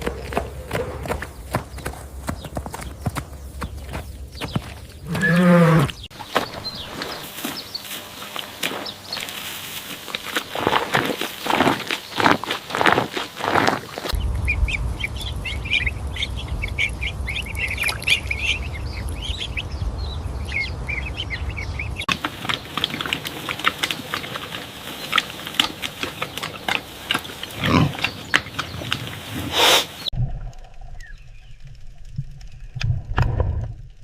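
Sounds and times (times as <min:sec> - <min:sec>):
loud animal calls: 0:05.1 - 0:06.0
low rumble: 0:14.2 - 0:22.1, 0:30.1 - 0:34.0
clicks and grunting: 0:22.1 - 0:30.7.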